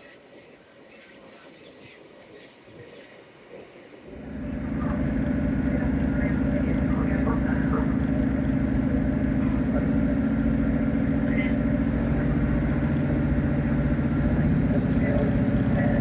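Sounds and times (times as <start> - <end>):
diesel train engine droning: 4.0 - 16.0.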